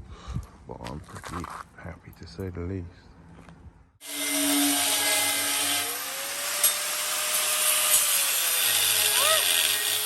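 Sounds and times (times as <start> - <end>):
power tool running: 4.0 - 10.0.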